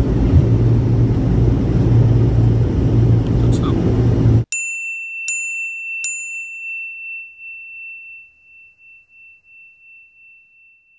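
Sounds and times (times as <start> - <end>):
clear bell-like chime: 4.5 - 10.9.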